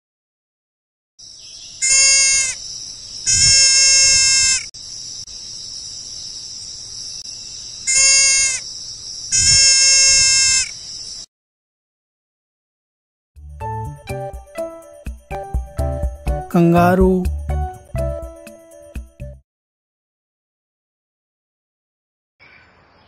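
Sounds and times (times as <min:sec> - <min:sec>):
animal bleating: 0:01.8 - 0:02.6, 0:03.3 - 0:04.7, 0:07.9 - 0:08.6, 0:09.3 - 0:10.7.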